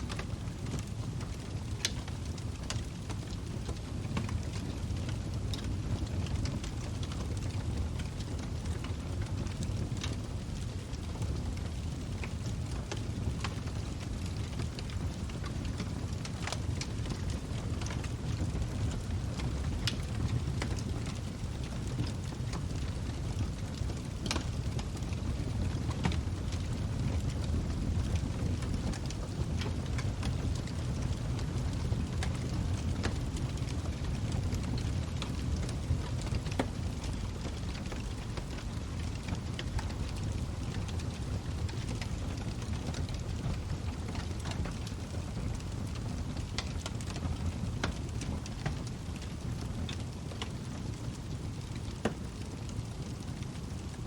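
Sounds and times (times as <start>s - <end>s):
log fire crackling and popping: 0.0s - 54.0s.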